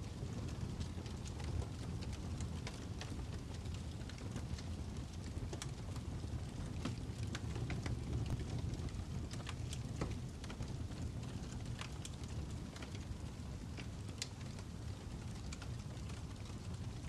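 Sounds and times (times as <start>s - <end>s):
fire crackling: 0.0s - 17.0s.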